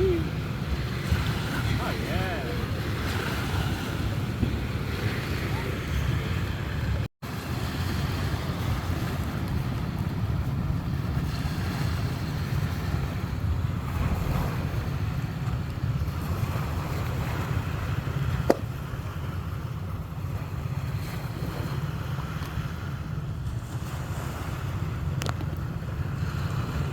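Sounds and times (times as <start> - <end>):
sea waves washing: 0.0 - 26.9
wind rumbling on microphone: 0.0 - 26.9.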